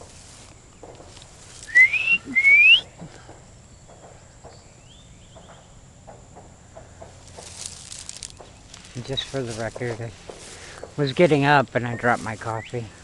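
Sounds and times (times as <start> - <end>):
faint rising whistle: 1.6 - 3.0
loud rising whistles: 1.6 - 3.0.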